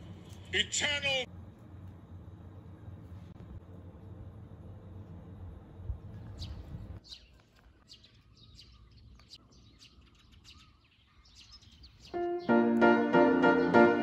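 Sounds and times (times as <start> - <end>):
birds chirping faintly: 6.1 - 14.0.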